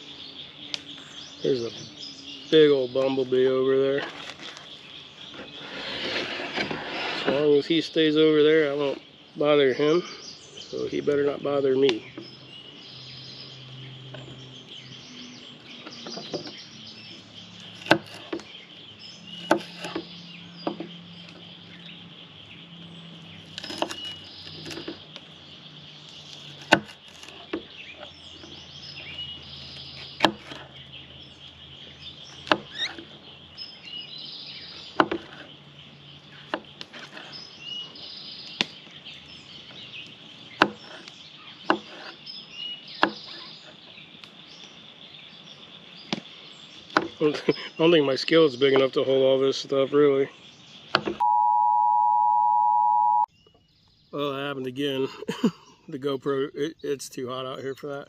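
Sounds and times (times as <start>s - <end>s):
bird chirps: 0.0s - 58.0s
knife chopping on cutting board: 19.4s - 20.0s.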